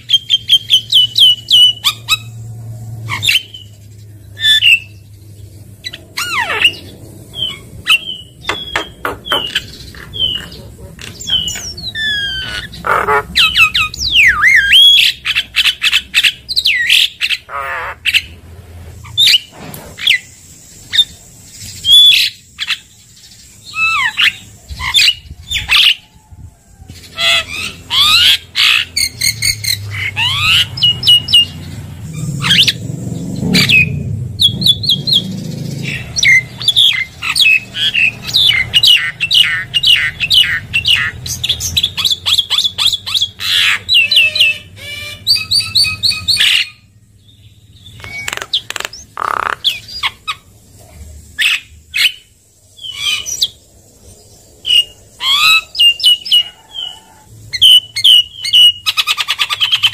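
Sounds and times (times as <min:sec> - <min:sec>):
myna singing whistles and squawks: 0:05.8 - 0:18.4, 0:33.6 - 0:46.9, 0:47.8 - 0:50.5, 0:54.6 - 0:59.9.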